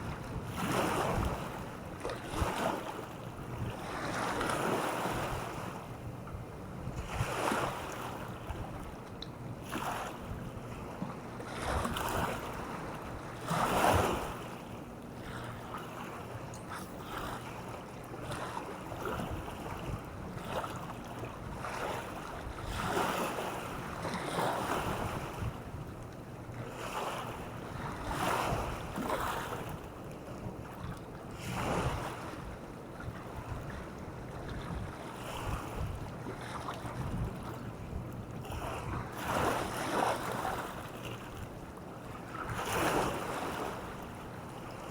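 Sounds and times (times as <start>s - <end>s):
small waves washing ashore: 0.0s - 6.1s, 6.9s - 9.0s, 9.6s - 44.9s
wind rumbling on microphone: 3.4s - 9.0s, 18.2s - 26.0s, 27.4s - 40.8s.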